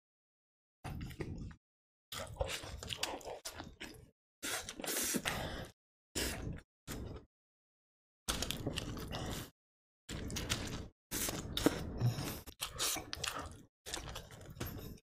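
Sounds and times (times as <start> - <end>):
wet biting and chewing: 10.1 - 15.0.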